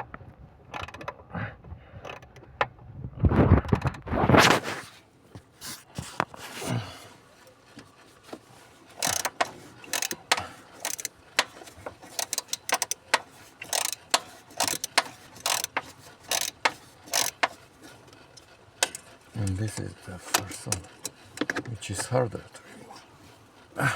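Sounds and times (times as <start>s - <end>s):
ratchet tool clicking: 0.7s - 1.1s, 2.0s - 2.4s, 9.0s - 17.6s, 18.4s - 19.6s.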